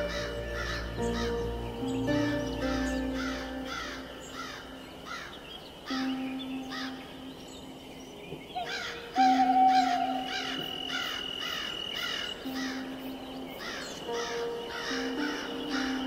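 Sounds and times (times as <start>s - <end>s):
background music of held notes: 0.0s - 16.0s
harsh crow-like caws: 3.2s - 6.1s, 9.8s - 12.8s.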